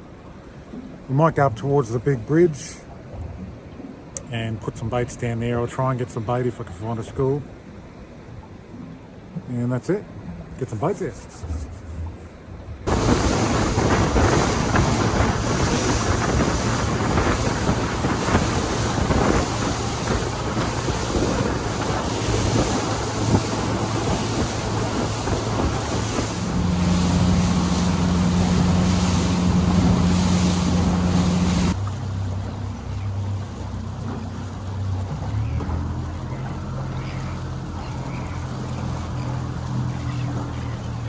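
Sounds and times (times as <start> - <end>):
outboard motor hum: 0.0 - 41.0
water rushing against hull: 0.0 - 41.0
wind buffeting microphone: 11.3 - 31.8.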